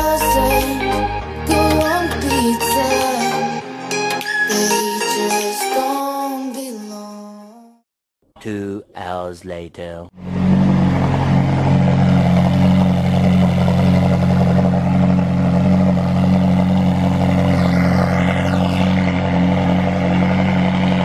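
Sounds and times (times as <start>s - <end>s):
car engine idling: 10.2s - 21.0s.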